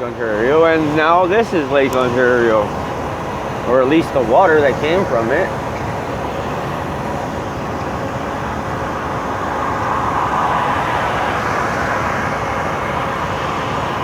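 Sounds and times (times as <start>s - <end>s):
car road noise: 0.0s - 14.0s.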